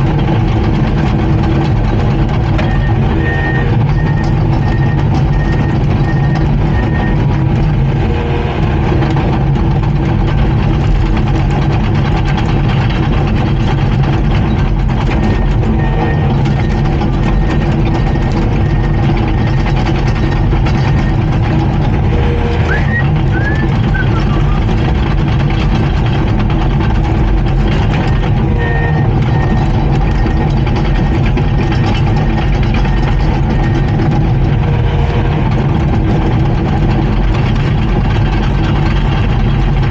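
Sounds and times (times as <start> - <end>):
bulldozer diesel engine running: 0.0 - 39.9
reversing alarm beeps: 2.5 - 7.3, 15.1 - 21.3, 22.2 - 24.7.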